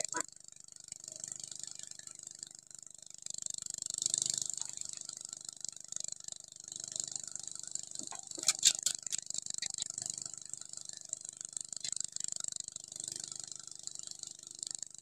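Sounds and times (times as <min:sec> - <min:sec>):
sharp clicks: 0:08.1 - 0:09.8.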